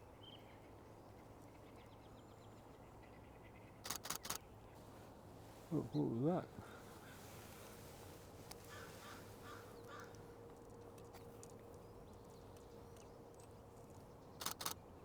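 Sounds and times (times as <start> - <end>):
faint steady hum: 0.0 - 15.0
bird calling faintly: 8.5 - 10.2.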